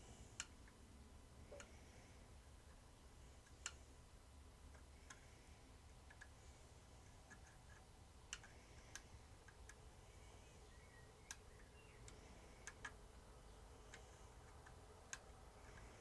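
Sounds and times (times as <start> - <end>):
faint sharp clicks: 8.3 - 9.8, 11.2 - 13.0.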